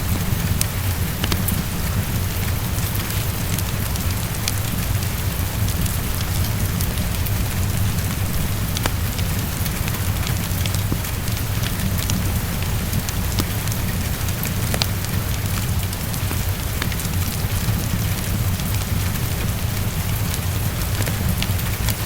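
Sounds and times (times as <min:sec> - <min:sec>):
heavy rain falling: 0:00.0 - 0:22.0
wood fire crackling and popping: 0:00.0 - 0:22.0.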